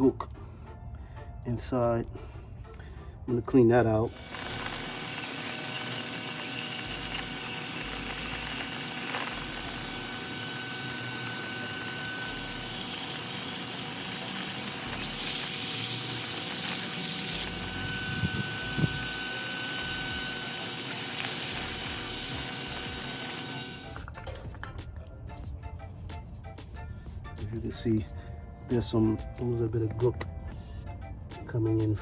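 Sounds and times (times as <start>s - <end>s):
faint steady whine: 4.1s - 24.0s.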